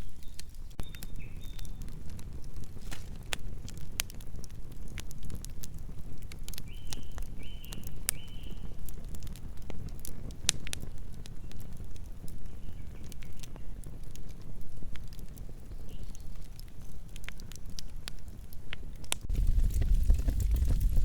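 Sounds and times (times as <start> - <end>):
wood fire crackling: 0.0 - 21.0
low steady rumble: 19.3 - 21.0.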